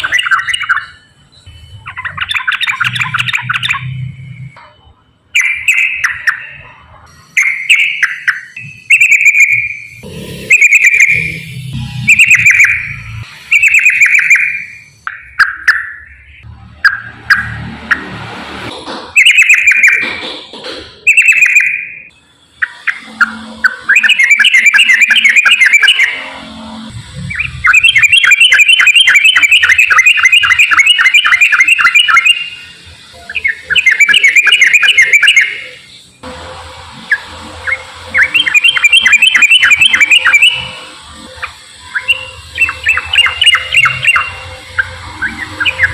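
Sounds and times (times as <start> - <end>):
bird rolling chatter song: 0.0 - 1.0, 1.8 - 4.1, 7.4 - 11.4, 12.0 - 16.2, 19.2 - 20.4, 21.0 - 22.0, 22.6 - 26.4, 27.2 - 35.9, 37.1 - 45.9.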